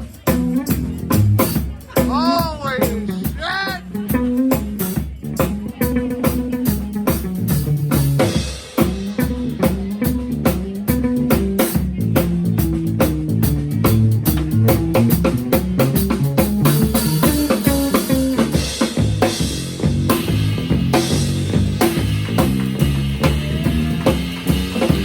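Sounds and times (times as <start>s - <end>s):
drum kit beat: 0.0s - 25.0s
live rock band: 0.0s - 25.0s.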